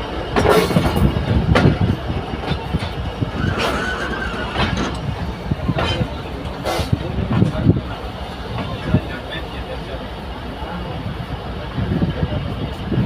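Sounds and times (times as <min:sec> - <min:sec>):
train clatter and knocks: 0:00.0 - 0:13.0
train rumbling on track: 0:00.0 - 0:13.0.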